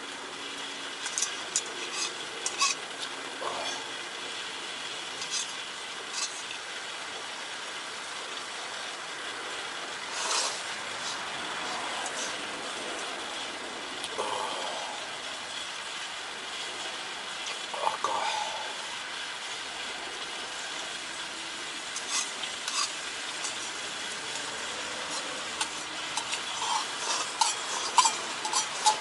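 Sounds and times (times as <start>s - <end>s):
steady low hiss: 0.0s - 29.0s
utensils clinking against bowl: 1.0s - 2.8s, 5.2s - 6.6s, 21.9s - 29.0s.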